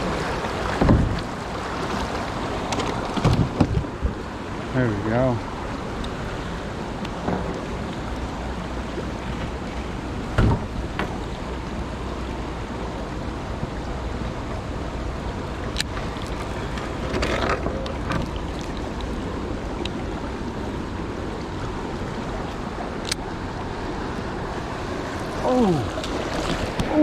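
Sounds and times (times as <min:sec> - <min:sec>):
wind on the microphone: 0:00.0 - 0:02.0
river water rushing: 0:00.0 - 0:27.0.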